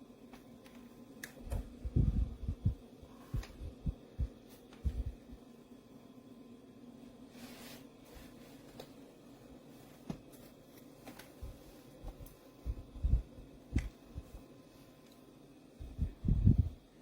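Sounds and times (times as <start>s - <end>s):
fan humming: 0.0s - 17.0s
low thumps: 1.5s - 5.2s.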